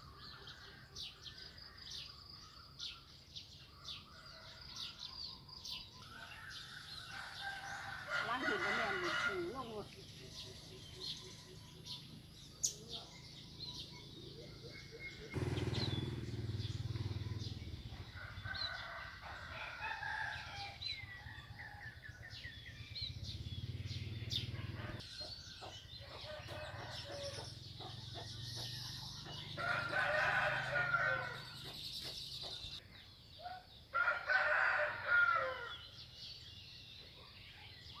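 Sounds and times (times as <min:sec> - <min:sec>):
small birds chirping: 0:00.0 - 0:34.0
rooster crowing: 0:06.1 - 0:09.8, 0:26.1 - 0:27.5, 0:29.6 - 0:31.6, 0:33.9 - 0:35.8.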